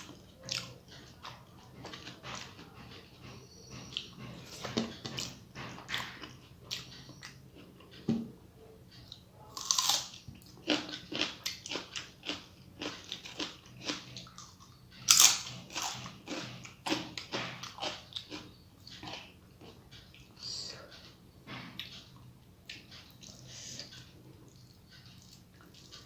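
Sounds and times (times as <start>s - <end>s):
person chewing wetly: 0.0s - 8.0s, 9.1s - 20.3s, 21.8s - 26.0s.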